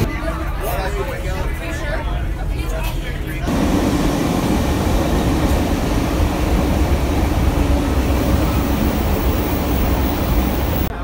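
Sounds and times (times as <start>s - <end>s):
train rushing and rumbling: 2.2s - 11.0s.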